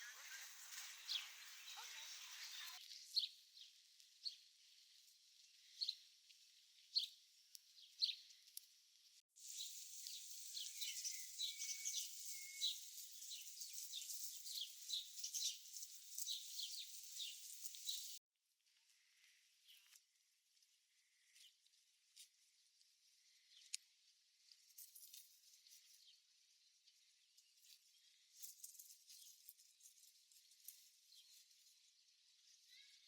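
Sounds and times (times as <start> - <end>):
songbirds chirping: 0.0 - 18.2, 19.1 - 33.0.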